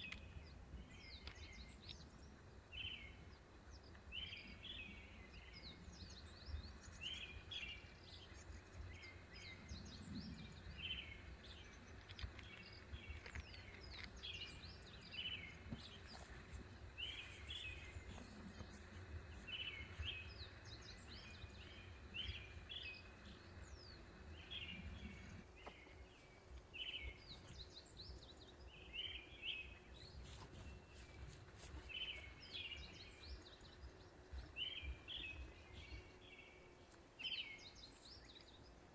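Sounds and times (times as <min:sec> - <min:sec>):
faint low rumble: 0:00.0 - 0:38.9
small birds chirping: 0:00.0 - 0:38.9.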